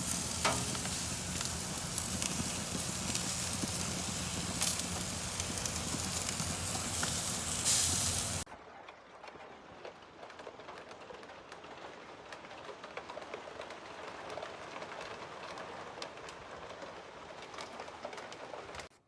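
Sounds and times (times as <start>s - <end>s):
rain and hail pelting down: 0.0s - 8.4s.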